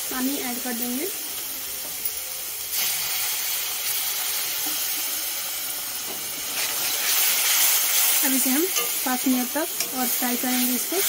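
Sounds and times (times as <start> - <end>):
paste sizzling in a pan: 0.1 - 11.0.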